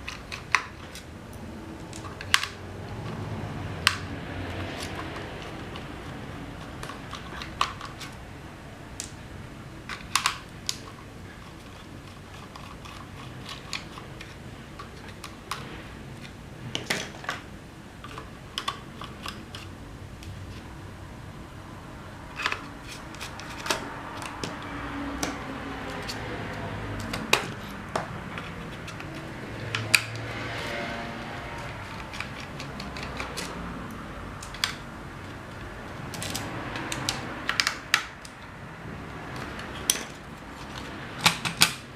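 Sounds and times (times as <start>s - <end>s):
faint steady background noise: 0.0s - 41.9s
plastic parts and tools clicking: 31.5s - 33.7s, 34.4s - 38.5s, 39.3s - 41.8s.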